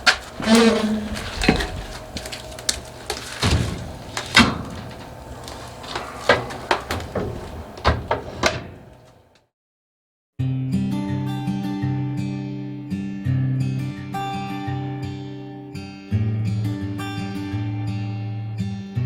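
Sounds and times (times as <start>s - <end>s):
irregular knocks and bangs: 0.0s - 9.2s.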